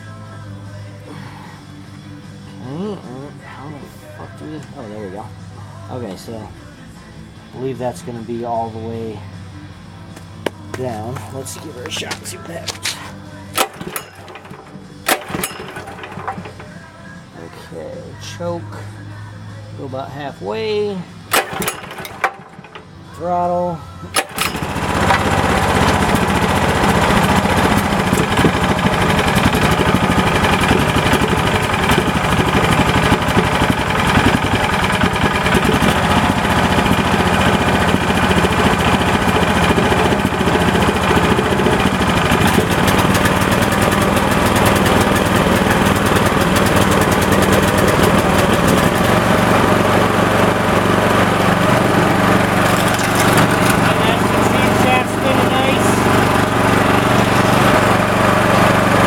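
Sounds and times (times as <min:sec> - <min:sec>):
small engine running: 0:10.1 - 0:17.2, 0:21.1 - 0:23.1, 0:23.9 - 0:59.0.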